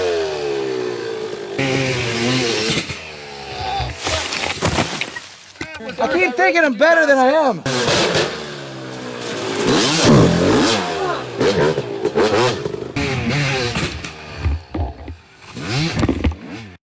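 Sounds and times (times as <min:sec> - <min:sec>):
dirt bike engines revving: 0:00.0 - 0:04.4, 0:05.6 - 0:16.8.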